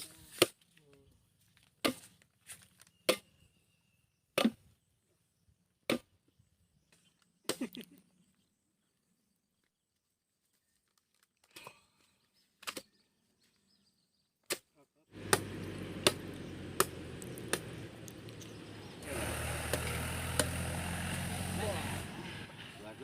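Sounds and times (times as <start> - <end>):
blade chopping into palm: 15.2 - 17.9.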